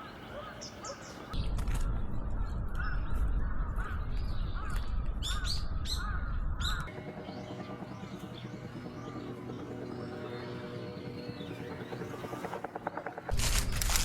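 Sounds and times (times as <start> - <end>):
low rumble: 1.4 - 6.9.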